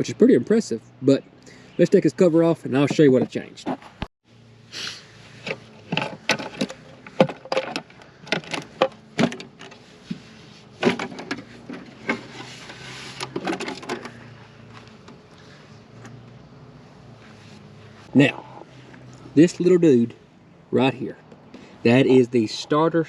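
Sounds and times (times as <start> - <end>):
outboard cowling clicks and knocks: 5.4 - 10.2, 10.8 - 12.4, 13.2 - 14.2.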